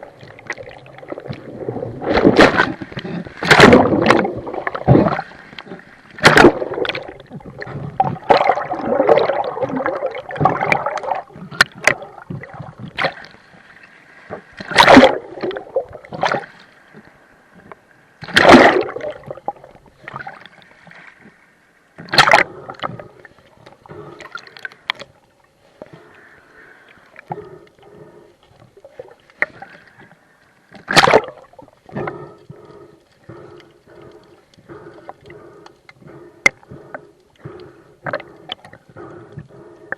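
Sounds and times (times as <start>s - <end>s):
seawater sloshing and gurgling: 0.0s - 17.0s, 17.6s - 21.4s, 22.0s - 25.2s, 27.2s - 39.9s
loud water splashes: 1.9s - 5.3s, 6.2s - 7.1s, 14.6s - 15.5s, 18.2s - 19.1s, 30.8s - 31.4s.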